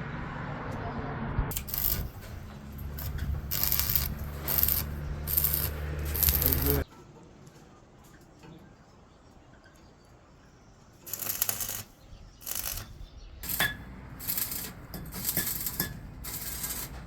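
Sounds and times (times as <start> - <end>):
harsh hissing bursts: 1.5 - 6.8, 11.1 - 17.0
sharp metal clicks: 1.5 - 6.8.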